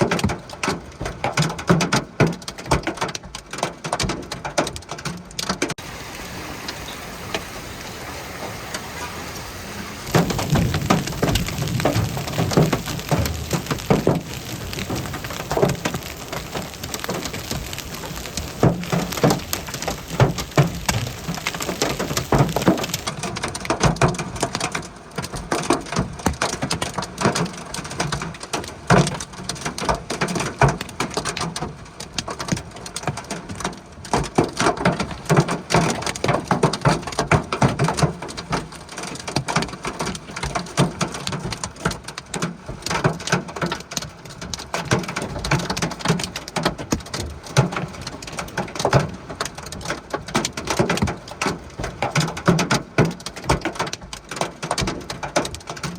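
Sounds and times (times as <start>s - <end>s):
hailstones pelting hard surfaces: 0.0s - 55.9s
rain hissing: 5.8s - 24.6s.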